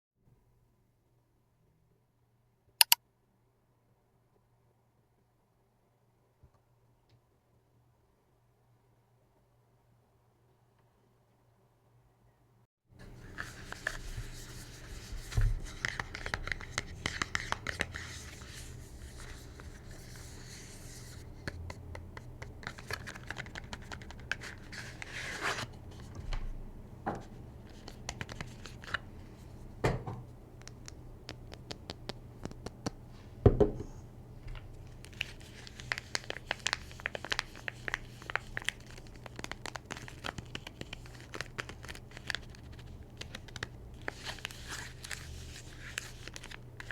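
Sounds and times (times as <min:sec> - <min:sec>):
wrapper crinkling and tearing: 0:35.0 - 0:46.9.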